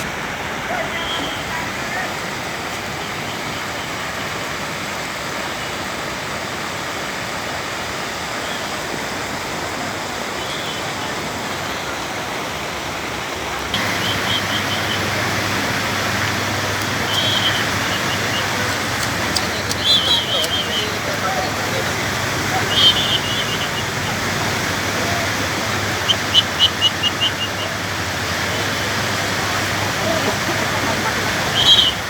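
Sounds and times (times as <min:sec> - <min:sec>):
flooding river rushing: 0:00.0 - 0:32.0.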